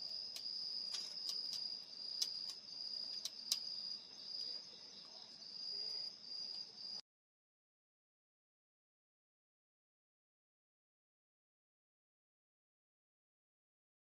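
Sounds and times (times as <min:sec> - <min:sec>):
crickets trilling: 0:00.0 - 0:07.0
wood fire crackling: 0:00.0 - 0:07.0.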